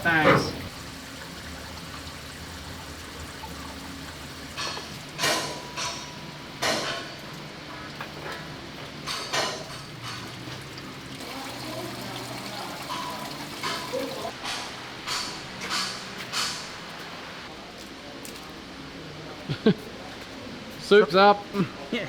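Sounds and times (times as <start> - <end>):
water draining and splashing: 0.0 - 14.3.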